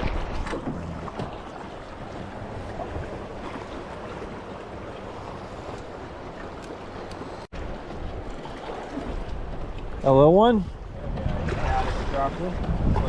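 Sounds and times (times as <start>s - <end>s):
wind rumble on microphone: 0.0s - 1.4s, 7.6s - 13.0s
river current rushing: 0.0s - 9.7s.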